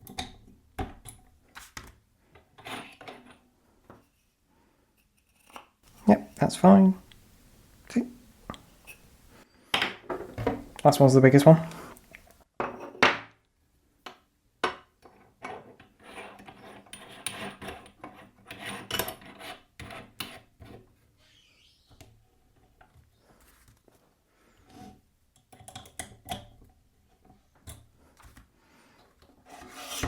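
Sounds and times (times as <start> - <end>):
metal scraping against wood: 5.9 - 9.4, 29.5 - 30.0.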